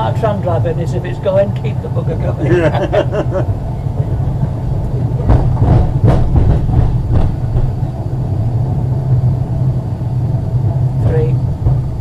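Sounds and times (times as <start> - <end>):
tram rumbling along track: 0.0 - 12.0
sharp knocks: 5.2 - 7.8.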